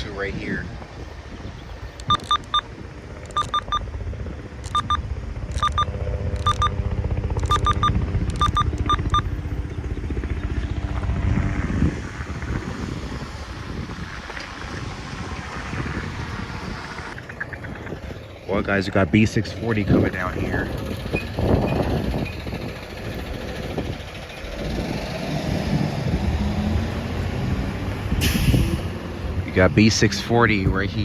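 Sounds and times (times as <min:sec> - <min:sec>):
diesel locomotive drone: 0:00.0 - 0:31.0
freight train rumbling past: 0:08.8 - 0:31.0.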